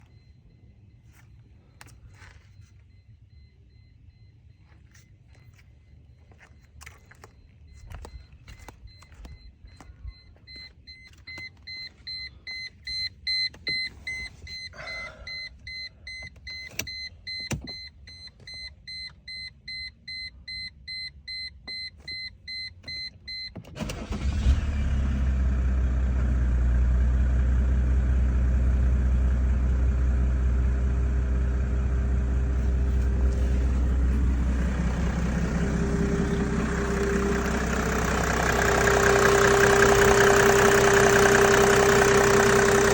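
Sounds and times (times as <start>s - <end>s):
dashboard warning chime beeping: 0.0s - 24.5s, 28.4s - 42.9s
car engine cranking and idling: 21.6s - 42.9s.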